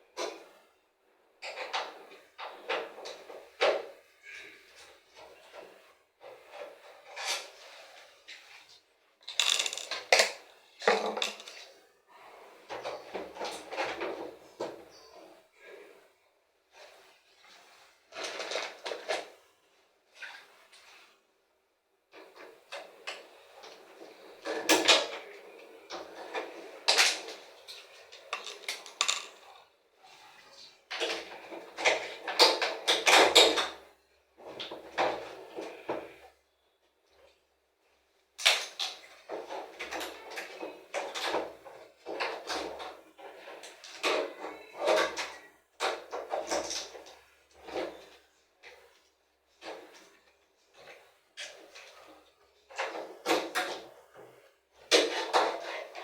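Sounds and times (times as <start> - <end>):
parts and tools scraping and knocking: 9.2 - 11.8, 22.2 - 30.2
tools and parts rattling: 9.3 - 11.6, 28.1 - 29.5.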